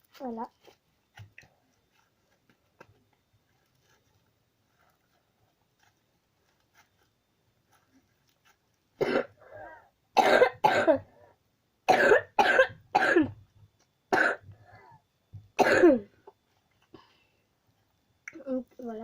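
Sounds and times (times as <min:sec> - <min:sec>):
person coughing: 0:09.0 - 0:11.1, 0:11.9 - 0:13.4, 0:14.1 - 0:14.5, 0:15.6 - 0:16.1.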